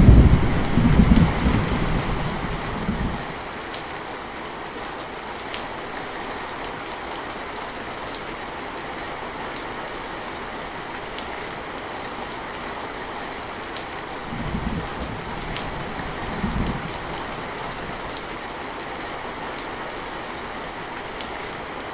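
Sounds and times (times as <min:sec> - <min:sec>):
low rumbles: 0:00.0 - 0:03.3
rain falling: 0:00.0 - 0:21.9.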